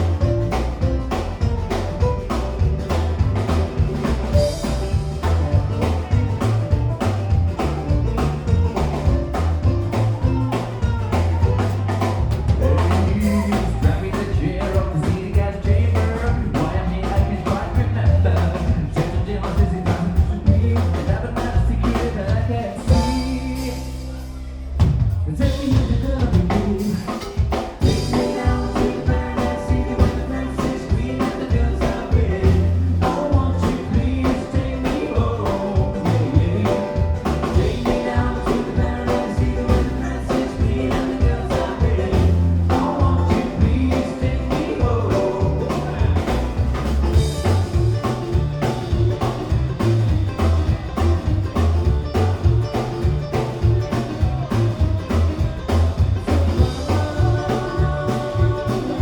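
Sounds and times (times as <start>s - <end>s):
drums: 0.0s - 59.0s
live band playing: 0.0s - 59.0s
person singing: 9.1s - 24.4s, 25.3s - 49.2s, 55.4s - 59.0s.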